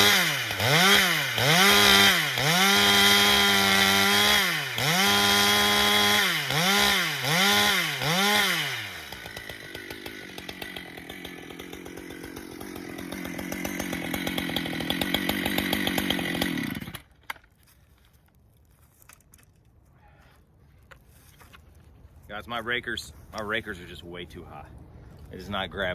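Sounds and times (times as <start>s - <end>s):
chainsaw running: 0.0s - 17.3s.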